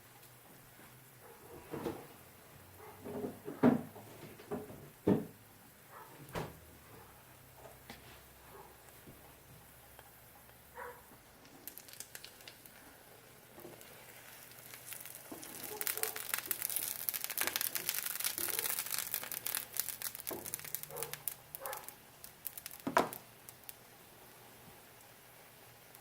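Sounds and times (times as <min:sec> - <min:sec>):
food sizzling in a pan: 0:11.2 - 0:26.0.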